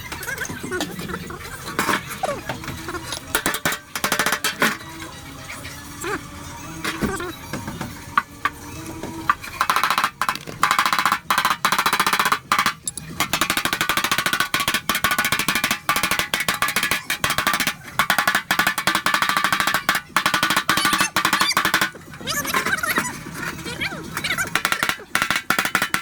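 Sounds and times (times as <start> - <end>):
power tool chattering on sheet metal: 3.2 - 4.9, 9.3 - 22.1, 24.4 - 26.0.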